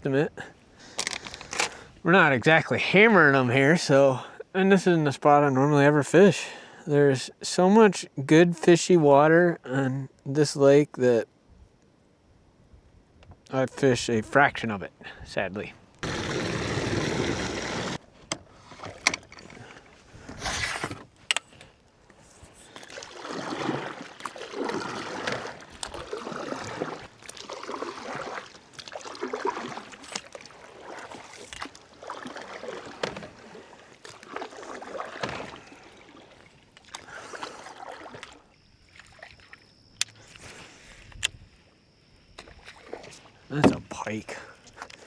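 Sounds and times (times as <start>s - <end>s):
water sloshing against canoe hull: 15.8s - 45.0s
sharp knocks and clicks: 43.6s - 43.9s.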